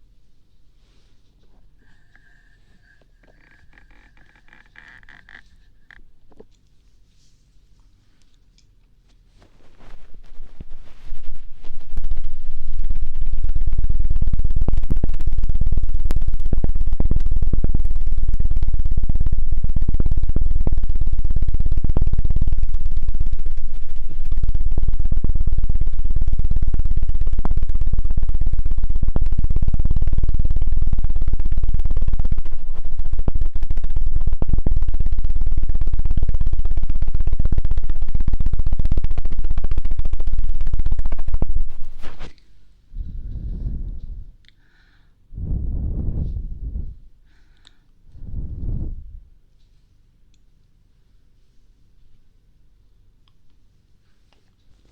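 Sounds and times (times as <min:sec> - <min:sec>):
low thumping on microphone: 0:42.9 - 0:44.4, 0:45.4 - 0:47.1, 0:48.1 - 0:49.4.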